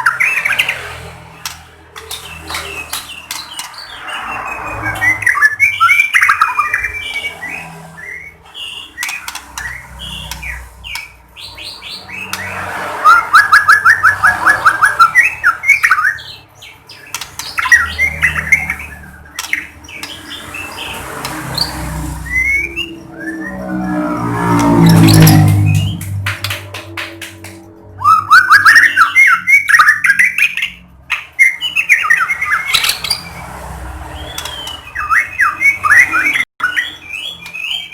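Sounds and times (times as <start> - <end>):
bird singing whistles and trills: 2.3 - 20.8, 21.6 - 24.1, 28.0 - 33.4, 34.2 - 37.9.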